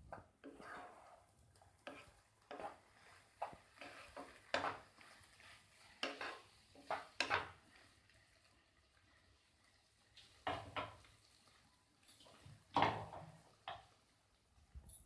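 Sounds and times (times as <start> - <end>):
metal utensil scraping a pan: 0.1 - 8.4.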